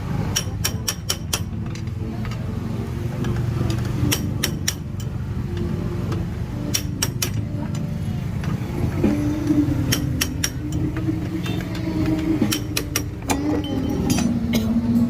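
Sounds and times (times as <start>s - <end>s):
metal tools clicking: 3.2s - 5.7s, 6.7s - 7.9s, 9.8s - 14.7s.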